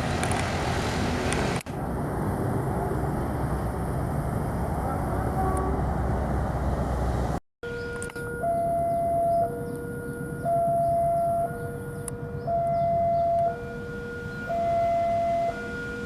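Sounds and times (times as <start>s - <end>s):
two-tone level crossing alarm: 7.6s - 16.0s.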